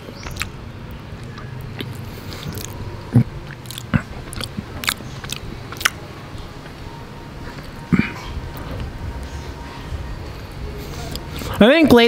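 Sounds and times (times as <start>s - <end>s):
person chewing wet food: 0.2s - 0.6s, 1.2s - 6.1s, 10.8s - 11.6s.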